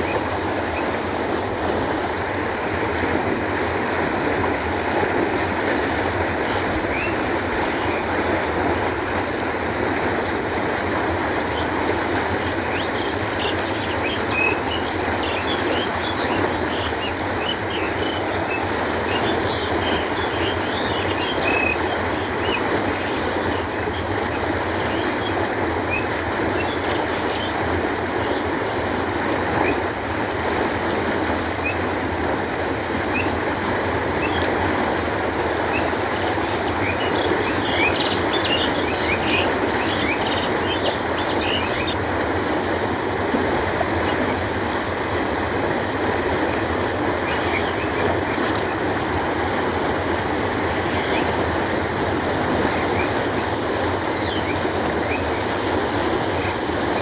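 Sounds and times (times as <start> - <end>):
canal water flowing: 0.0 - 57.0.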